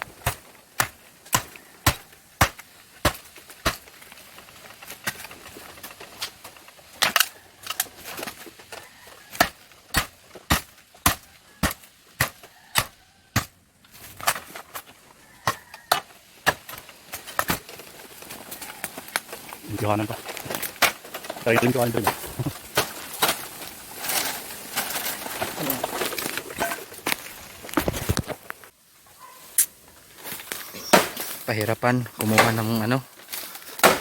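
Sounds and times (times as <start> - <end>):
blade chopping bamboo: 0.2 - 4.0, 9.3 - 13.6, 32.2 - 32.8, 33.7 - 34.0.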